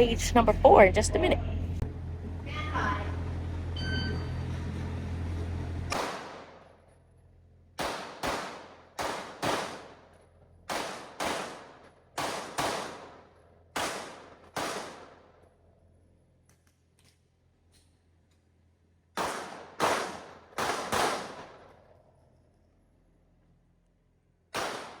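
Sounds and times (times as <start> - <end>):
rapid pistol shots: 5.9 - 6.8, 7.8 - 15.4, 19.1 - 21.9, 24.5 - 25.0.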